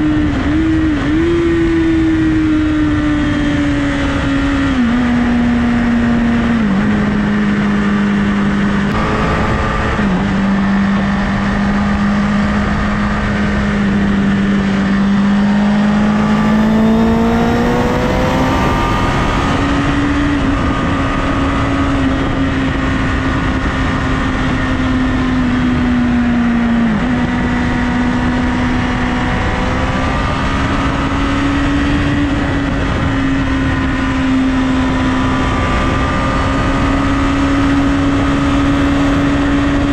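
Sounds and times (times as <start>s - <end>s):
motorcycle engine at speed: 0.0s - 39.9s
wind rushing: 8.9s - 11.1s, 15.4s - 21.7s.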